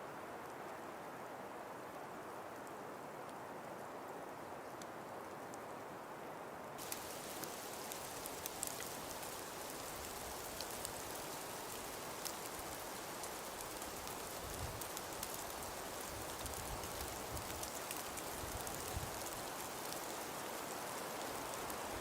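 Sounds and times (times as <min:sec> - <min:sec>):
snow grains ticking on surfaces: 0:06.8 - 0:22.0
wind hissing: 0:06.8 - 0:22.0.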